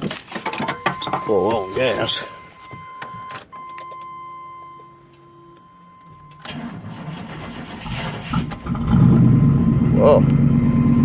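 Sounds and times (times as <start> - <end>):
starter motor cranking: 6.4 - 9.6
engine running: 6.4 - 11.0.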